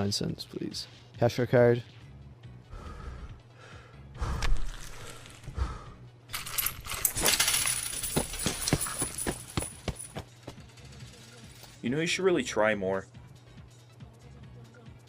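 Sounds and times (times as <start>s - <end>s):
coins clinking on hard surface: 6.3s - 11.8s.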